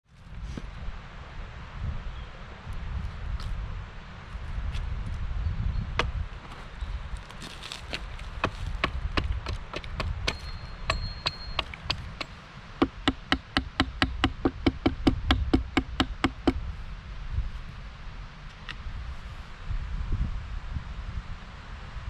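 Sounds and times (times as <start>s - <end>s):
tool striking wood: 7.4s - 16.6s.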